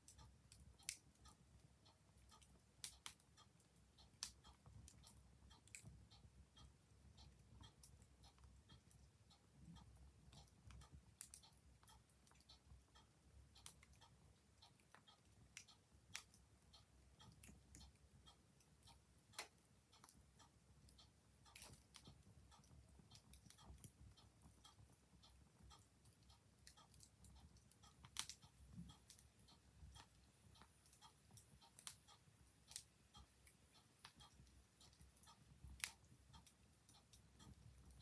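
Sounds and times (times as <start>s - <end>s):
clock ticking: 0.0s - 38.0s
wood fire crackling and popping: 28.0s - 28.4s, 35.7s - 36.1s.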